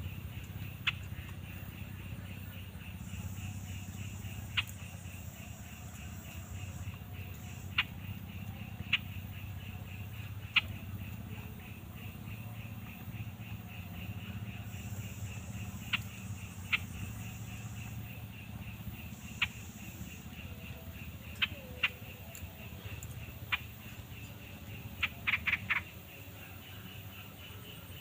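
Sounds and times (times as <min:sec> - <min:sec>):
high insect trill: 0:00.0 - 0:28.0
low hum: 0:00.0 - 0:28.0
bird giving sharp calls: 0:24.9 - 0:25.9.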